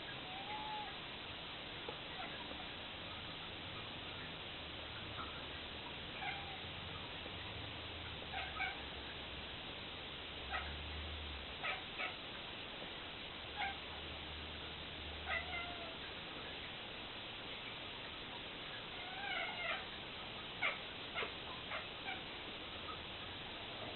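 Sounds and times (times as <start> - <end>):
steady hiss: 0.0 - 23.9
cat chirping meows: 0.2 - 1.0, 6.2 - 6.7, 8.3 - 8.8, 15.2 - 16.0, 18.9 - 19.9.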